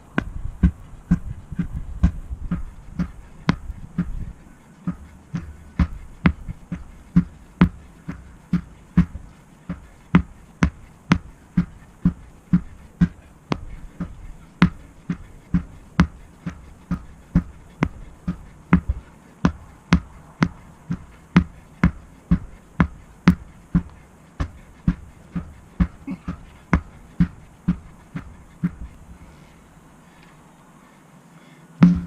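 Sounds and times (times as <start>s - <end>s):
sledgehammer striking tire: 4.9s - 27.9s.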